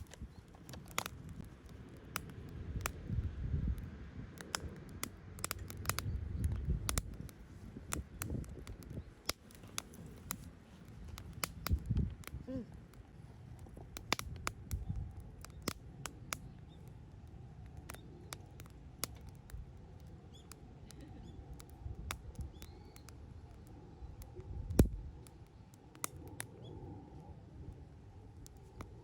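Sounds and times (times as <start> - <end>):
wood fire crackling and popping: 0.0 - 26.6, 27.8 - 29.0.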